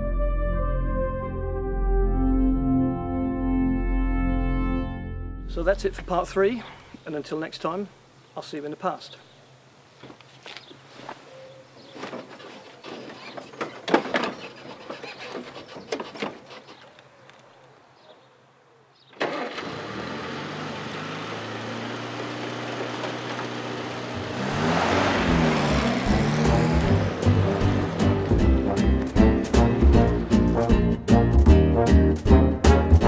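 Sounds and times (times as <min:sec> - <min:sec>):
car engine revving: 0:19.2 - 0:31.1
car engine starting and idling: 0:19.2 - 0:31.1.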